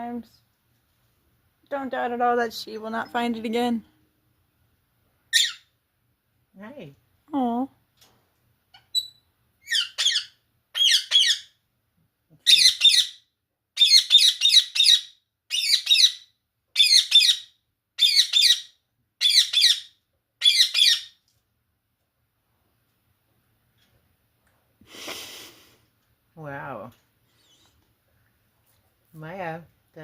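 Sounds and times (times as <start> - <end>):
parakeet squawking: 5.3 - 5.7, 8.8 - 11.5, 12.4 - 13.2, 13.8 - 16.2, 16.8 - 21.2.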